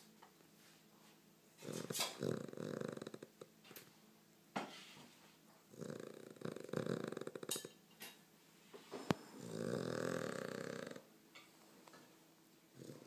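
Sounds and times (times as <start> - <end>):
dog snoring: 1.6 - 3.5, 5.7 - 7.7, 9.0 - 11.1, 12.7 - 13.0.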